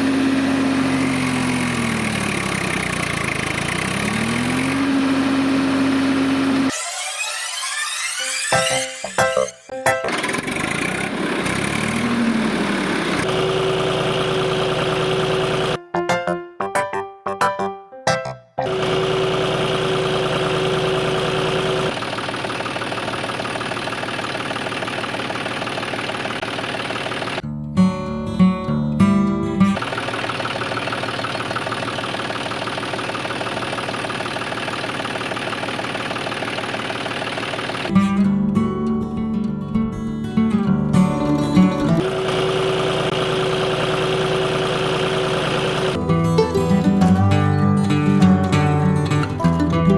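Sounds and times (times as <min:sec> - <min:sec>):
small motor pulsing: 0:00.5 - 0:09.4, 0:18.7 - 0:27.4, 0:29.8 - 0:37.9, 0:42.0 - 0:46.0.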